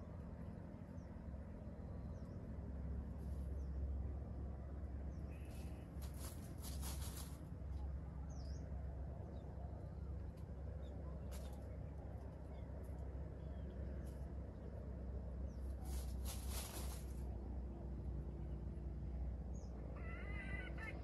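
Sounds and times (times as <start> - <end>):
steady low hum: 0.0 - 21.0
dry leaves crackling and rustling: 5.5 - 7.6, 11.2 - 11.8, 15.6 - 17.4.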